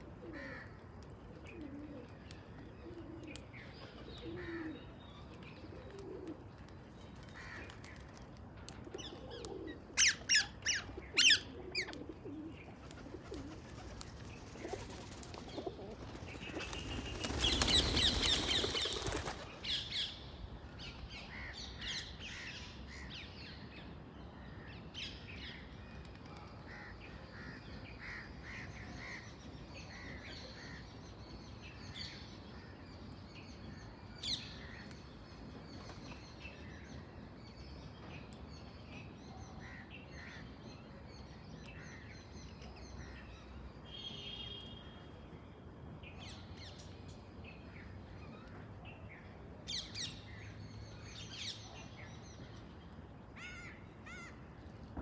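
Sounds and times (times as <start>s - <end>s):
dove-like coos: 1.3s - 3.4s, 4.2s - 4.8s, 5.6s - 6.5s, 8.9s - 14.0s, 14.6s - 16.7s
wings fluttering: 12.8s - 19.6s.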